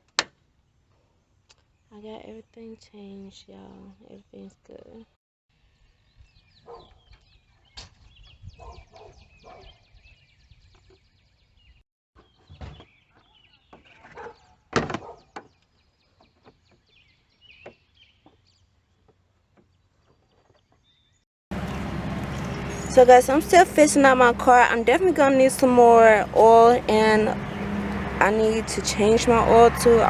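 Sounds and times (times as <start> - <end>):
faint bird chirping: 1.1 - 21.2
knocks and clunks: 12.2 - 15.5.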